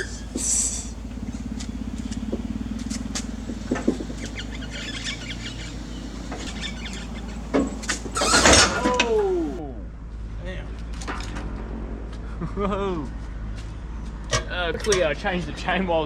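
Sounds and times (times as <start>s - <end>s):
loud metal clatter: 0.0s - 9.6s.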